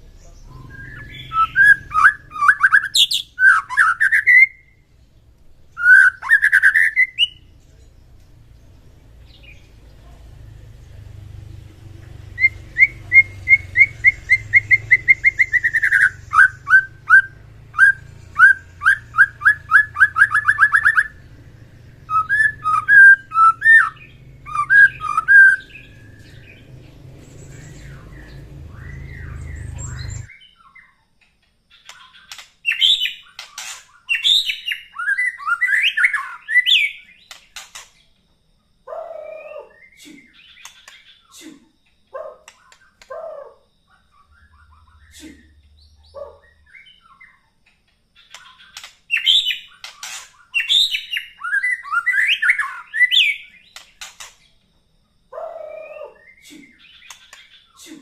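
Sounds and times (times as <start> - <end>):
bird whistled song: 0.3 - 4.9, 5.6 - 7.5, 12.3 - 31.0, 31.7 - 37.8, 44.0 - 47.5, 48.2 - 54.5, 55.4 - 58.0
steady low hum: 7.3 - 30.3.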